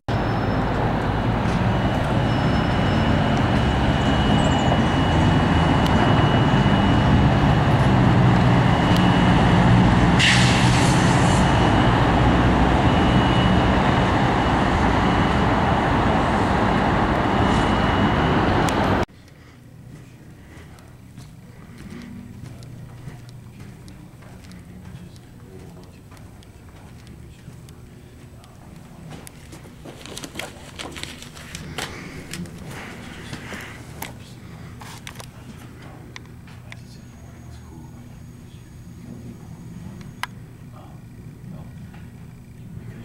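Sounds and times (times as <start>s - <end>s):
road noise: 0.1s - 19.1s
vehicle engine rumble: 0.1s - 19.1s
thin high whine: 0.1s - 19.6s, 31.1s - 43.0s
brief sharp sound: 10.2s - 11.7s.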